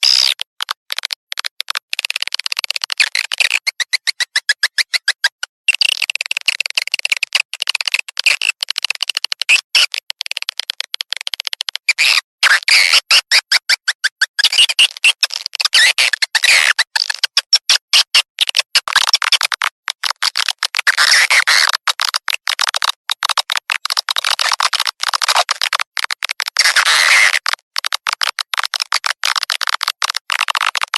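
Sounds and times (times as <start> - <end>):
rapid twittering bird chirps: 3.0 - 5.3.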